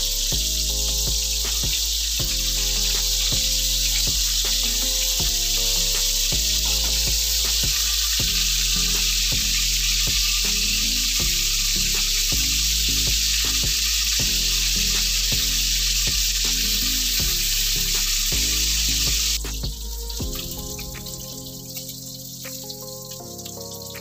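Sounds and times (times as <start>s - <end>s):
meat sizzling in oil: 0.0s - 24.0s
oil crackling and popping: 0.0s - 24.0s.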